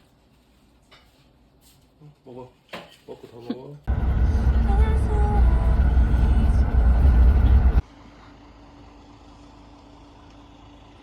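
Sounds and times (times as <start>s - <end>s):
loud low rumbling: 3.9s - 7.8s
quiet steady hum: 3.9s - 10.7s.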